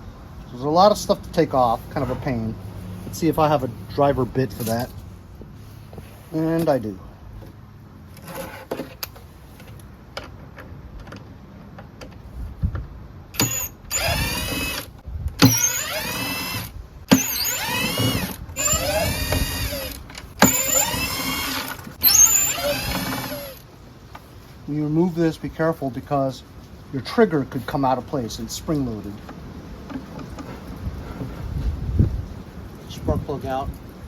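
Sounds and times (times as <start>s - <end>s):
cordless drill whining: 13.4s - 23.6s.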